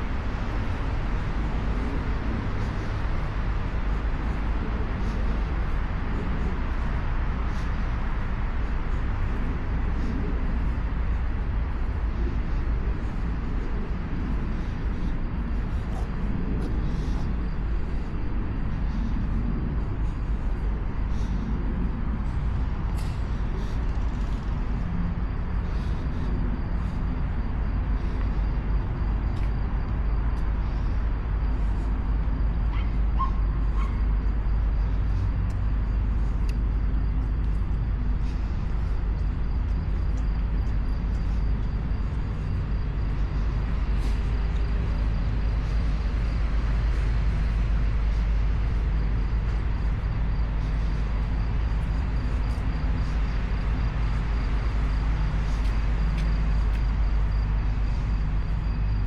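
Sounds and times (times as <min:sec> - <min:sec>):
low machine rumble and hum: 0:00.0 - 0:59.0.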